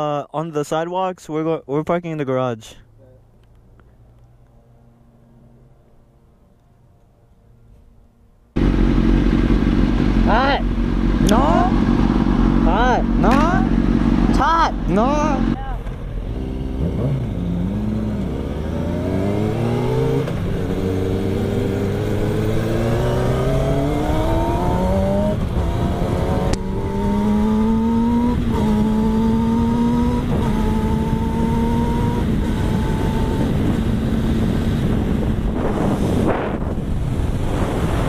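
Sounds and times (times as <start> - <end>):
motorcycle engine accelerating: 8.6 - 38.0
wind rushing over microphone: 16.8 - 38.0.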